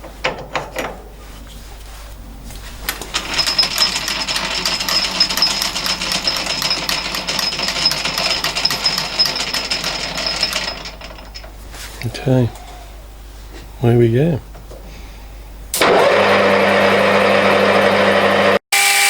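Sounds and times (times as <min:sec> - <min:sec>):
metal lathe cutting with high whine: 0:15.8 - 0:19.0.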